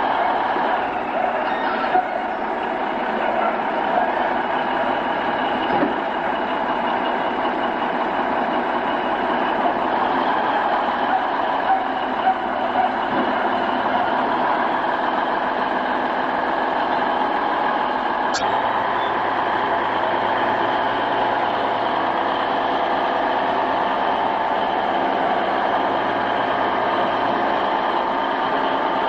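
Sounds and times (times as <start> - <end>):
heavy vehicle engine running: 0.0 - 29.0.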